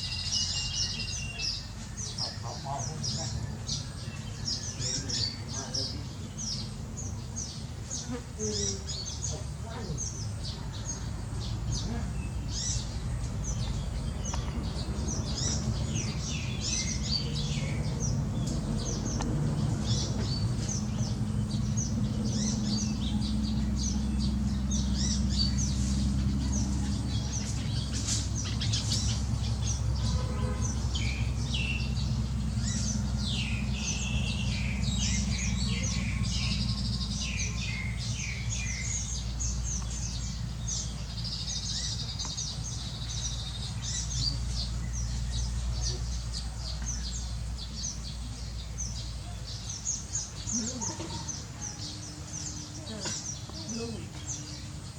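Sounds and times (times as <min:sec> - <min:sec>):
small birds chirping: 0:00.0 - 0:54.9
steady low rumble: 0:08.9 - 0:50.8.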